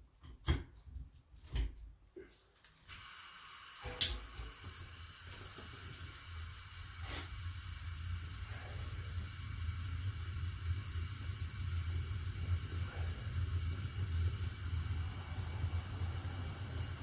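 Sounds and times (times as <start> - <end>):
gas hissing: 2.9 - 17.0
heater igniter click: 2.9 - 17.0
burner low rumble: 4.2 - 17.0.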